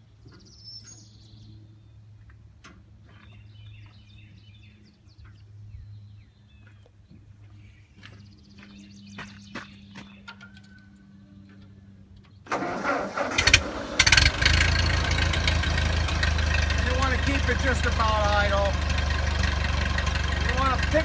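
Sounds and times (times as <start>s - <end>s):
small birds chirping: 0.0s - 2.4s, 3.0s - 12.5s, 16.3s - 21.0s.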